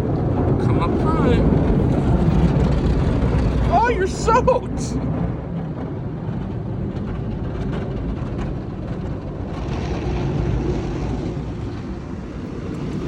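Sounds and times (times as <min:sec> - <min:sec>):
car wash machinery rumbling: 0:00.0 - 0:13.0.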